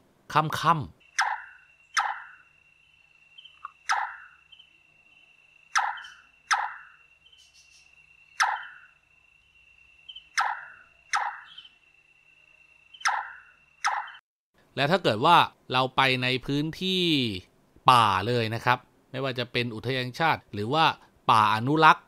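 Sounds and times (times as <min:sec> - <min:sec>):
nightjar hollow knocking call: 0:01.0 - 0:09.0, 0:10.1 - 0:11.8, 0:12.9 - 0:14.2.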